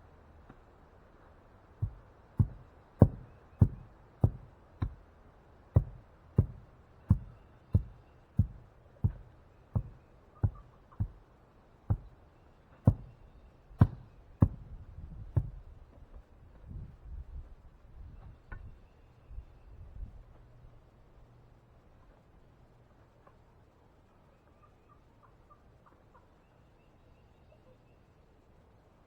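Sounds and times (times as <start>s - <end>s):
heavy pounding knocks on post: 1.8s - 5.1s, 5.7s - 11.3s, 11.9s - 12.2s, 12.9s - 13.2s, 13.8s - 15.6s.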